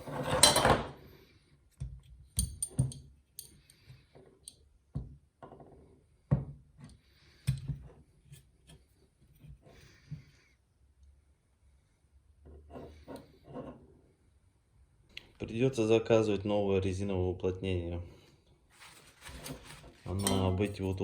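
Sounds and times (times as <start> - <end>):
brief rubbing sounds: 18.7 - 20.2
metal parts clinking: 18.8 - 21.0.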